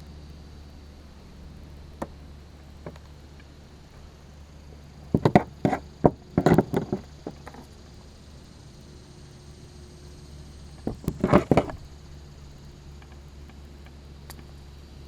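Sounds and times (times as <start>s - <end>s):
faint clicks: 13.0s - 14.6s.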